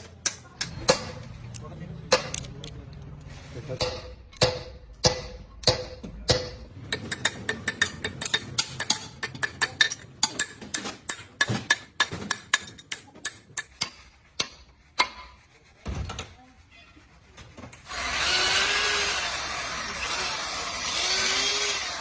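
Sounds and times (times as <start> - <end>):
metal tools tapping engine parts: 0.0 - 15.3.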